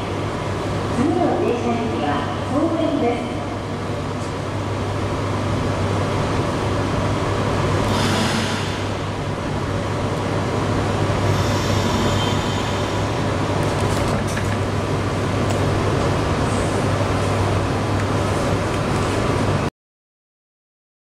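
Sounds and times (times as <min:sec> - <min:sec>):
train equipment hum and rumble: 0:00.0 - 0:19.7.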